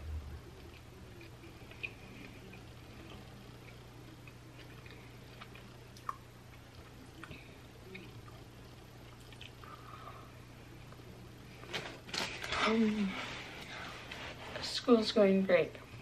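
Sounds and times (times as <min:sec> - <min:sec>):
steady low hum: 0:00.0 - 0:16.0
person chewing food: 0:00.6 - 0:10.0.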